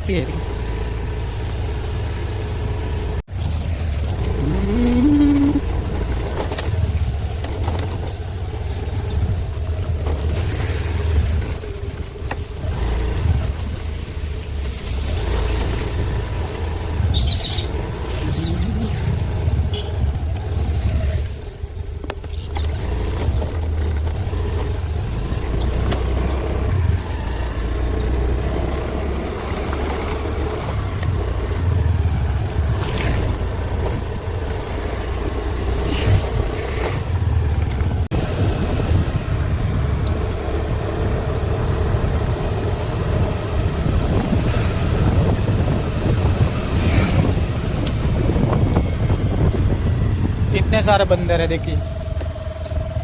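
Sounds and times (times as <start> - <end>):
road noise: 0.0 - 53.0
vehicle engine rumble: 0.0 - 53.0
wind buffeting microphone: 3.2 - 21.5, 30.5 - 53.0.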